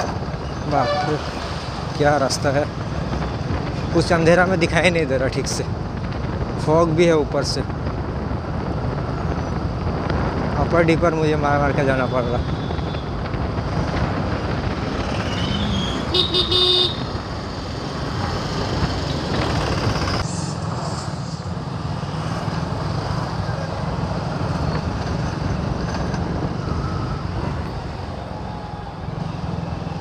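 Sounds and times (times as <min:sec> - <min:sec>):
wind rumble: 0:00.0 - 0:30.0
vehicle horn honking: 0:00.8 - 0:01.3, 0:16.1 - 0:17.1
motorcycle engine: 0:12.4 - 0:20.2.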